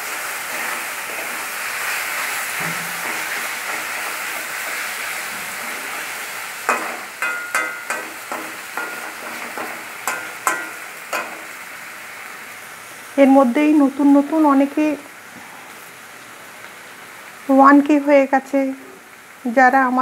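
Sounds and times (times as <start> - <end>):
onions sizzling in oil: 0.0 - 20.0
metal spatula scraping pan: 0.5 - 11.6.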